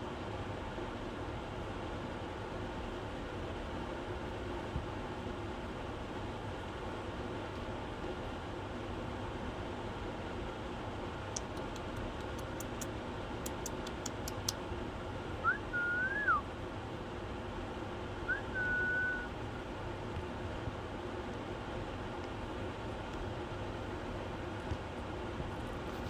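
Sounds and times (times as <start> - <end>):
faint sharp clicks: 11.3 - 14.6
parrot whistling: 15.4 - 16.4, 18.3 - 19.3.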